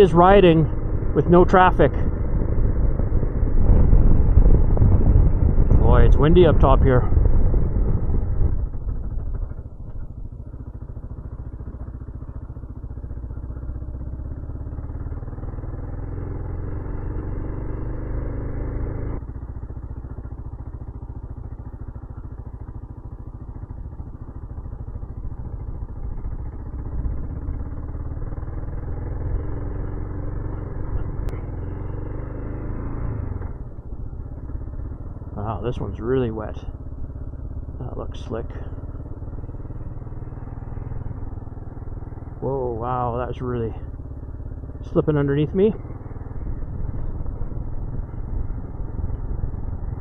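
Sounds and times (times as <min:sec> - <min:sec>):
motorcycle engine revving: 0:00.0 - 0:50.0
wind buffeting microphone: 0:02.4 - 0:10.2, 0:46.3 - 0:50.0.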